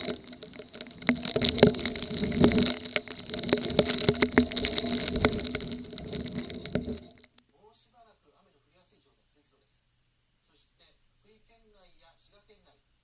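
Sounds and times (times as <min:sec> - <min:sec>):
heavy rain pouring: 0:00.0 - 0:07.4
raindrops striking close: 0:00.0 - 0:07.4.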